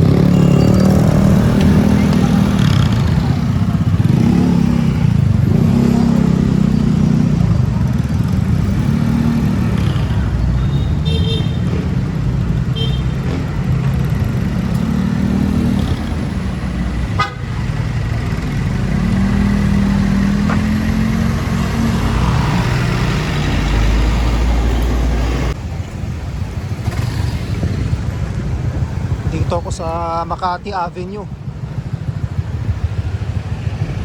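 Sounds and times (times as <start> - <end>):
motor vehicles rumbling: 0.0 - 34.0
vehicle horn: 9.8 - 11.8, 12.8 - 13.4, 17.1 - 17.6.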